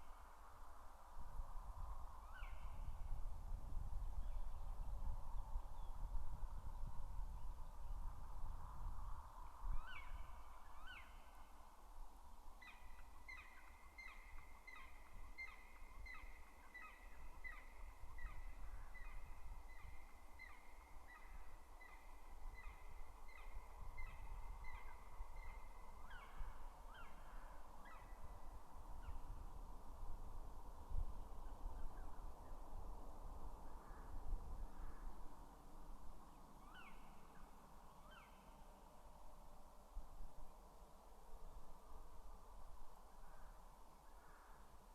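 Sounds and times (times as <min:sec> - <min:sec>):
low wind rumble: 0:00.0 - 0:44.9
woodpecker calling: 0:12.6 - 0:18.3.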